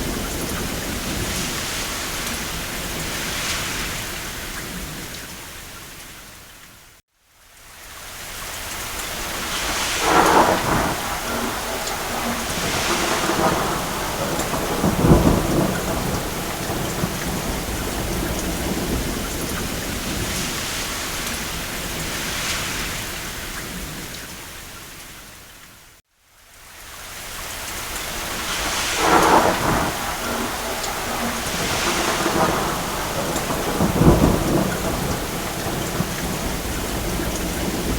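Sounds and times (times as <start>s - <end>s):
heavy rain: 0.0s - 37.9s
distant thunder rolling: 9.3s - 24.1s, 28.1s - 37.9s.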